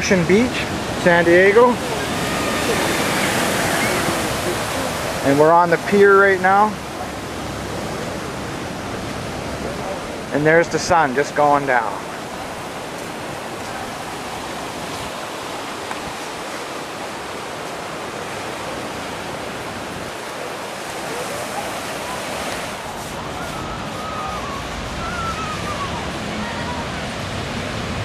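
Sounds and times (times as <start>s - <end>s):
ocean surf breaking: 0.0s - 28.0s
faint voices: 0.6s - 8.2s, 19.9s - 27.6s.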